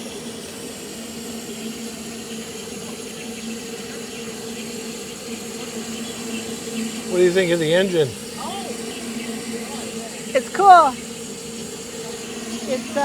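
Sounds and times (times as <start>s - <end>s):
steady low hum: 0.0s - 13.0s
steam locomotive hissing: 0.0s - 13.0s.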